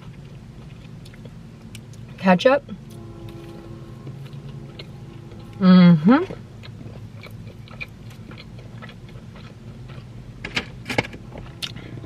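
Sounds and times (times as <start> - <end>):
wet chewing clicks: 6.6 - 10.2.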